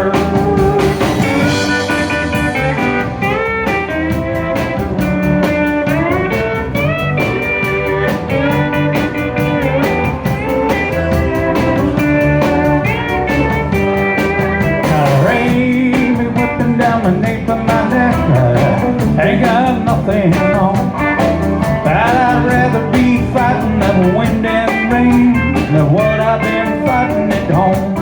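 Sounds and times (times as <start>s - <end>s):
lead guitar solo: 0.0s - 15.9s
bass: 0.0s - 28.0s
drums keeping a steady beat: 0.0s - 28.0s.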